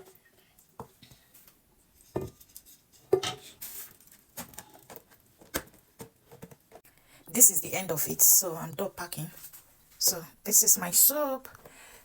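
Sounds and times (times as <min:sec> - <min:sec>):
containers knocking and clinking: 0:02.1 - 0:03.6.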